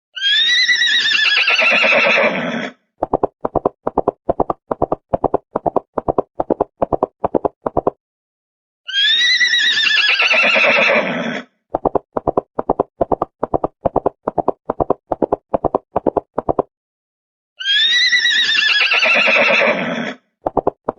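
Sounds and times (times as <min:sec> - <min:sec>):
horse whinnying: 0:00.2 - 0:02.8, 0:08.9 - 0:11.5, 0:17.6 - 0:20.2.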